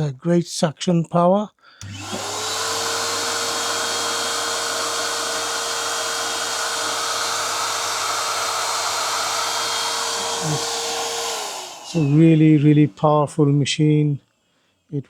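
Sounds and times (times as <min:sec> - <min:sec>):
vacuum cleaner running: 0:01.8 - 0:13.2.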